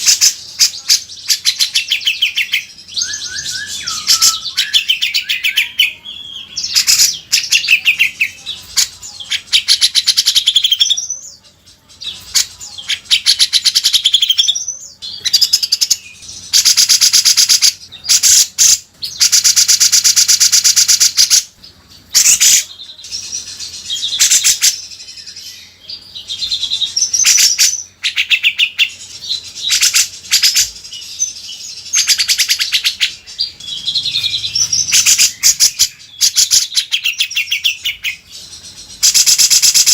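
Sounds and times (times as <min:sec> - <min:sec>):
bulbul chattering calls: 0:31.9 - 0:39.9.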